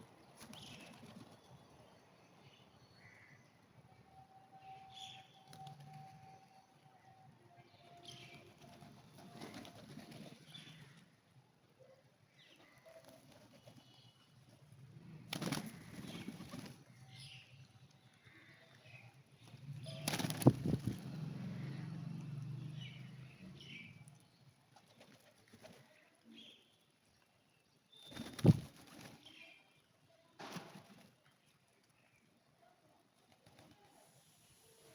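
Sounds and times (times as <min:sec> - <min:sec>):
pigeon wings flapping: 0:08.6 - 0:10.5, 0:15.3 - 0:16.8, 0:19.8 - 0:21.2, 0:28.1 - 0:29.3
faint bird chirps: 0:27.8 - 0:30.4.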